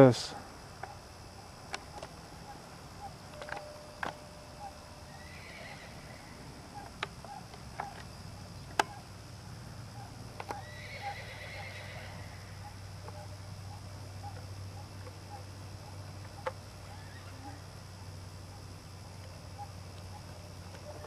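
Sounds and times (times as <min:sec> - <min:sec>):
horse whinnying: 0:05.1 - 0:06.4, 0:10.5 - 0:12.5.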